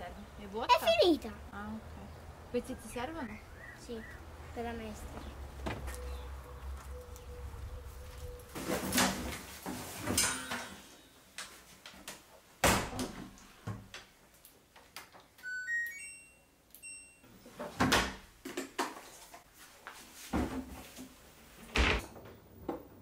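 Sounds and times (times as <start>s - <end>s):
high chirping tones: 15.4s - 17.4s.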